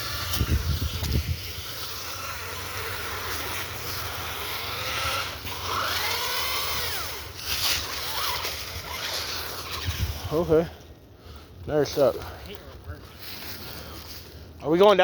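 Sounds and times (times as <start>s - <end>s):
small electric motor whining: 0.0s - 10.8s.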